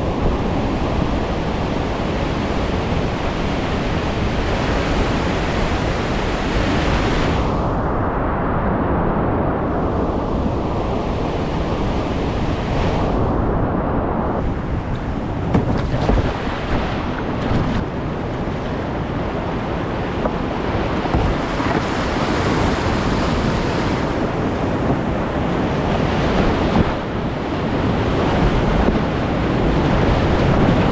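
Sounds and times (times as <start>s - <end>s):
rushing whitewater: 0.0s - 7.5s, 14.4s - 30.9s
wind buffeting microphone: 0.0s - 30.9s.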